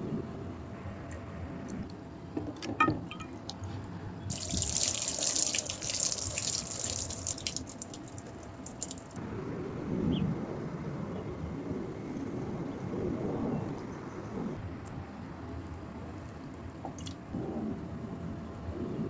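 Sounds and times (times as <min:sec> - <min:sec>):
water drips: 0:04.3 - 0:09.2, 0:16.8 - 0:17.2
water running and splattering: 0:04.3 - 0:09.2.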